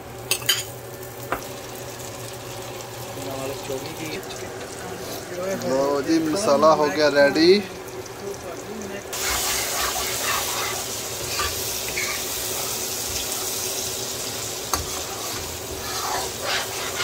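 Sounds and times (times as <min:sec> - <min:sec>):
curry sizzling in a pan: 0:00.0 - 0:17.0
spatula scraping a pan: 0:09.2 - 0:13.7, 0:14.7 - 0:17.0.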